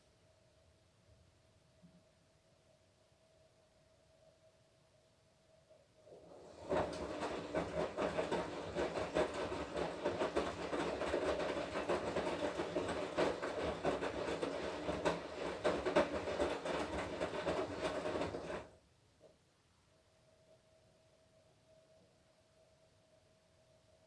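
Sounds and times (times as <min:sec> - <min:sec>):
washing machine drum turning: 0:06.2 - 0:18.7.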